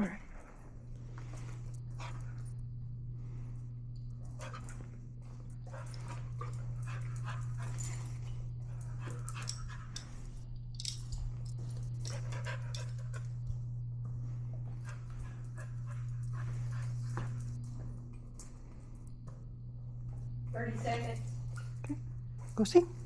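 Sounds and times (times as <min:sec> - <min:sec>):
loud steady low hum: 0:00.0 - 0:23.0
dog panting: 0:00.1 - 0:03.5, 0:04.1 - 0:13.4, 0:14.6 - 0:17.6.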